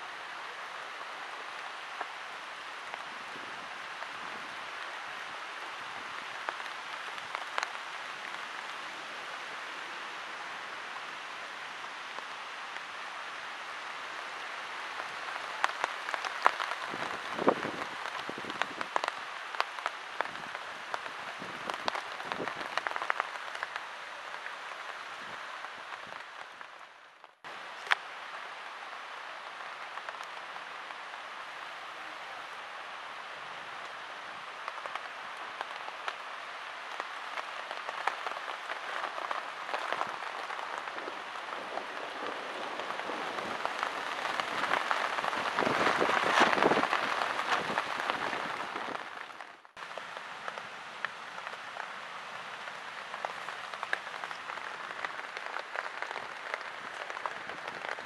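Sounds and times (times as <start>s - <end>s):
rain falling: 0.0s - 58.0s
raindrops ticking close by: 0.0s - 58.0s.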